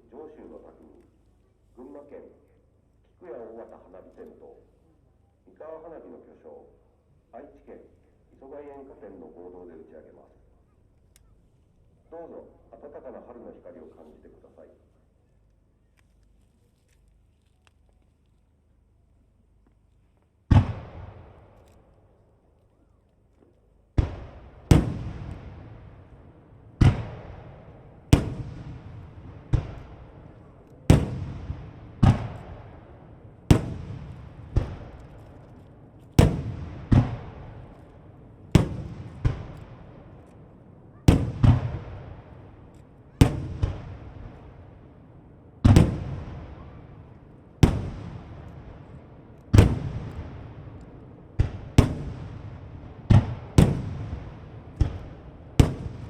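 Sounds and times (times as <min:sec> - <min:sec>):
fireworks bangs with echo: 0:20.5 - 0:21.6, 0:23.9 - 0:56.0.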